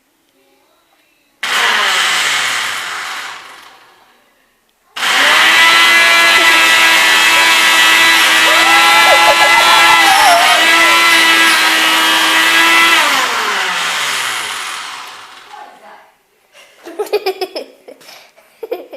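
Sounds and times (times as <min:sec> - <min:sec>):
blender motor whining: 0:01.4 - 0:03.9, 0:05.0 - 0:15.6.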